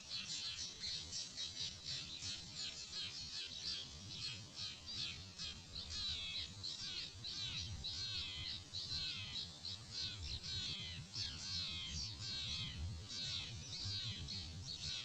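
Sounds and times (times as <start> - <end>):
small birds chirping: 0.0 - 15.0
wind rumble on microphone: 10.2 - 15.0.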